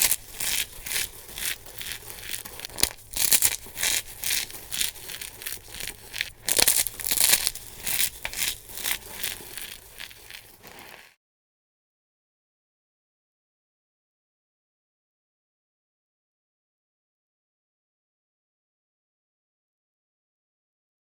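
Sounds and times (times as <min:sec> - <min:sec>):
dry soap crunching: 0:00.0 - 0:11.1.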